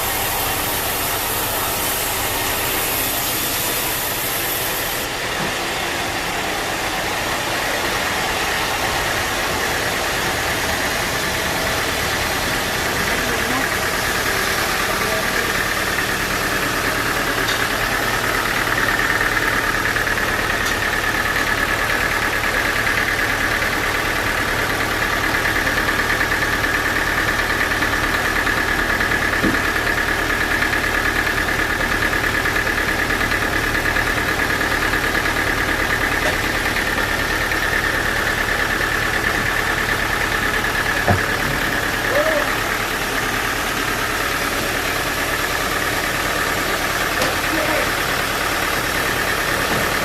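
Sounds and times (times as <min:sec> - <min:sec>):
sawmill machinery droning: 0:00.0 - 0:50.0.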